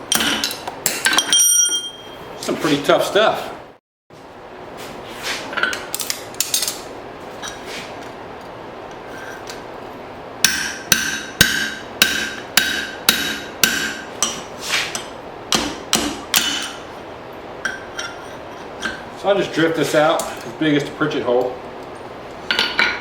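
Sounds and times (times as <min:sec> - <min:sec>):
hammer striking hot steel on anvil: 0:10.4 - 0:16.9.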